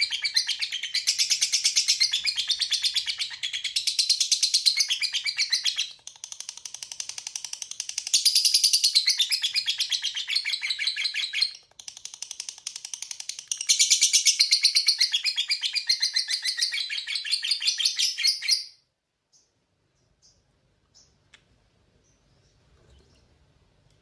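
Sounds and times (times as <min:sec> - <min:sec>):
lovebird chattering trill: 0:00.0 - 0:11.6.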